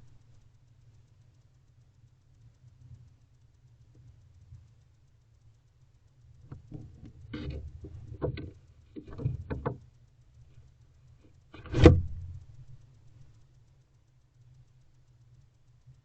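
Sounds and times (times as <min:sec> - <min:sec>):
talons scraping on wood: 0:06.5 - 0:09.8, 0:11.5 - 0:12.3
loud thump: 0:11.6 - 0:12.3.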